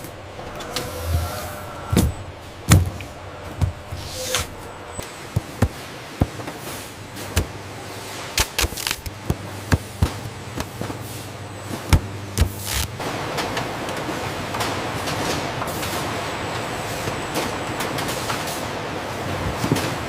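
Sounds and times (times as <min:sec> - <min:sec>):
machinery clanks and knocks: 0:00.0 - 0:07.9
low machine hum: 0:00.0 - 0:13.0.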